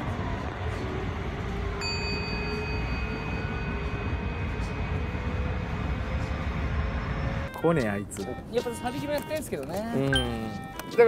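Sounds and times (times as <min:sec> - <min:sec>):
train rumble: 0:00.0 - 0:09.9
high-pitched tone: 0:10.0 - 0:11.0.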